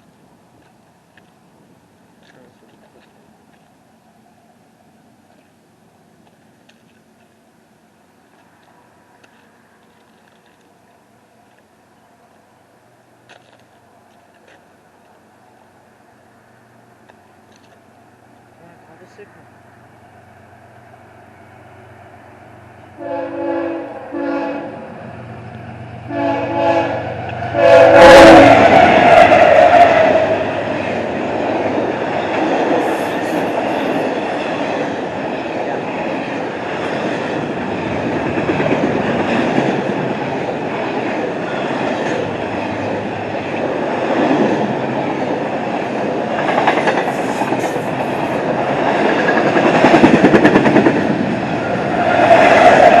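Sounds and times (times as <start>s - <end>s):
diesel locomotives passing: 0.0s - 53.0s
locomotive horn: 23.0s - 24.8s, 26.1s - 30.5s
train rumble and clickety-clack: 24.8s - 53.0s.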